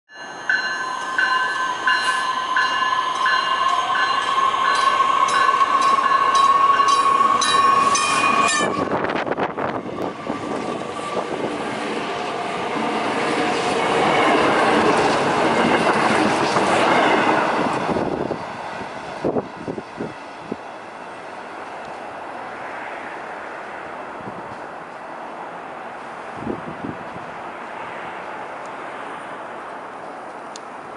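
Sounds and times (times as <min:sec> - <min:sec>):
train rushing past: 0:00.2 - 0:30.1
train horn: 0:01.7 - 0:11.3.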